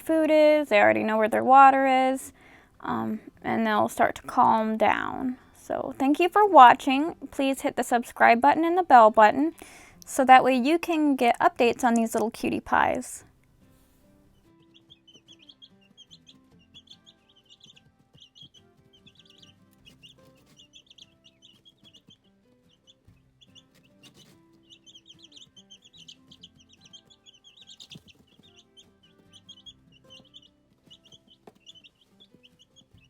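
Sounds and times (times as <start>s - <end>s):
baby chicks peeping: 14.3s - 33.0s.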